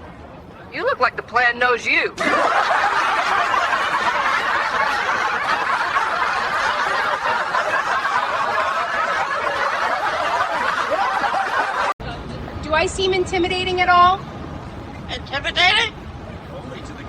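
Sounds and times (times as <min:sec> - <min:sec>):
crowd laughing: 0:02.2 - 0:12.0.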